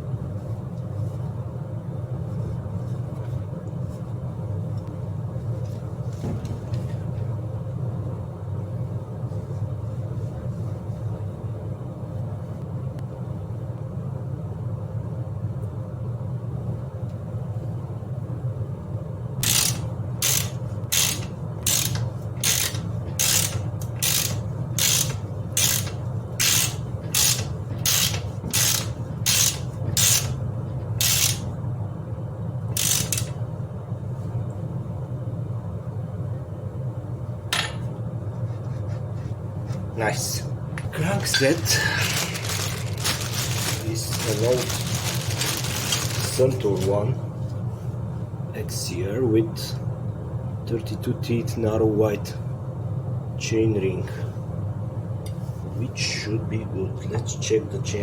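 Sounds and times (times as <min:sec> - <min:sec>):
steady low hum: 0:00.0 - 0:58.0
ratchet wrench clicking: 0:19.4 - 0:30.4, 0:31.0 - 0:31.5, 0:32.8 - 0:33.4.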